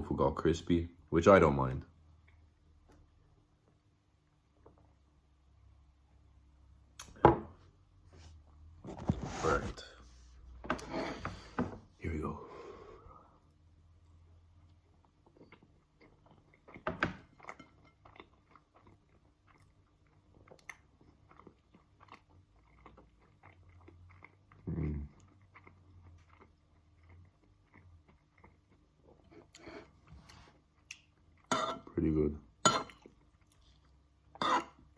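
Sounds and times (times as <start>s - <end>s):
person chewing food: 13.4s - 31.8s, 32.5s - 34.9s.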